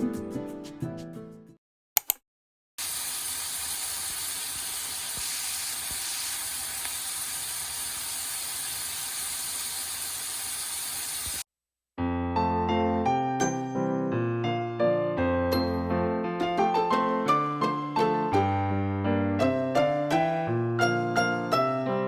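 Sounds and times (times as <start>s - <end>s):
short clicks: 2.0s - 2.2s.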